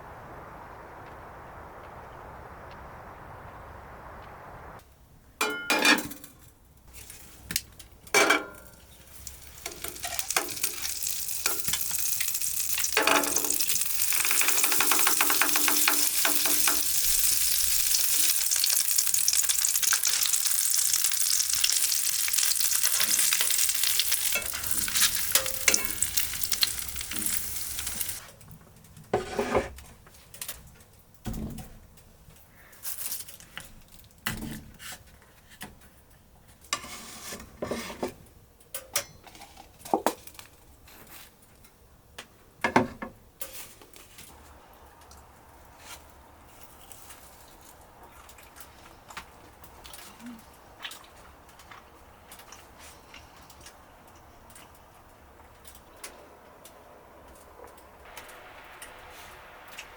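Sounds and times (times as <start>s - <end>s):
utensil clacking on a pan: 8.2s - 28.2s
food sizzling in a frying pan: 8.9s - 28.3s, 57.3s - 59.9s.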